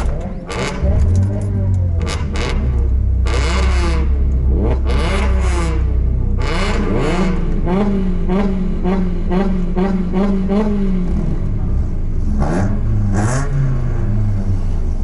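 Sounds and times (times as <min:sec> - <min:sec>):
low engine drone: 0:00.0 - 0:15.0
racing car engines revving: 0:00.0 - 0:15.0.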